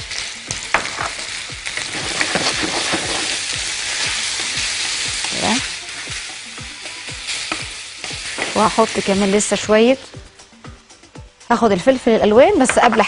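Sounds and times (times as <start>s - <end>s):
food sizzling in hot oil: 0.0s - 13.0s
wooden spoon scraping a pan: 1.0s - 6.4s.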